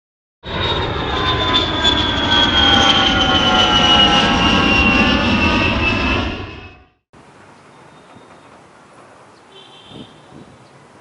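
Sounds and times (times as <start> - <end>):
jet engines passing: 0.4 - 9.2.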